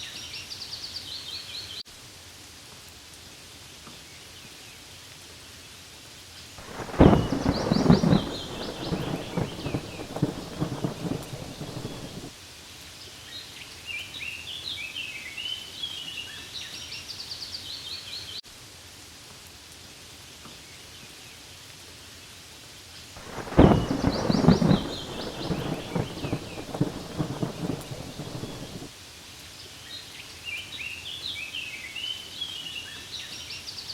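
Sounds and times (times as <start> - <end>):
rain falling on leaves: 0.0 - 33.9
bird chirping: 6.7 - 12.3, 23.3 - 28.9.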